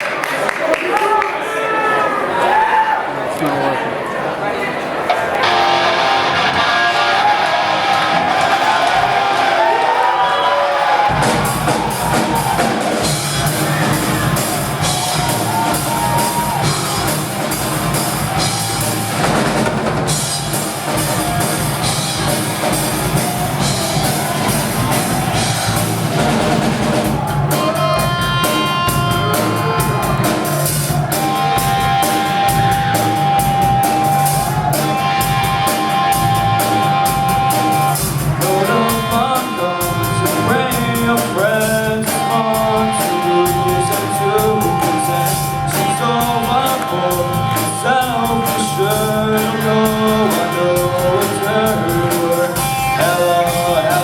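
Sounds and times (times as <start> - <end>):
rock band playing: 5.1 - 54.0
long held guitar notes: 5.3 - 9.7, 11.0 - 54.0.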